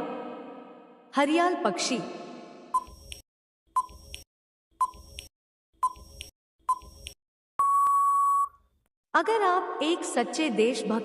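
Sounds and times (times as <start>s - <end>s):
short electronic beeps: 2.7s - 3.1s, 7.6s - 8.6s
long beep: 7.6s - 8.6s.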